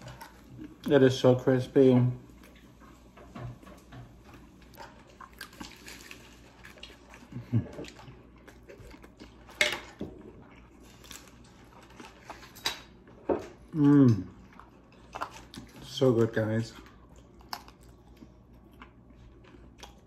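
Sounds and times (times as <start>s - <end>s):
crunchy chewing and biting: 4.2s - 13.0s, 13.6s - 20.0s.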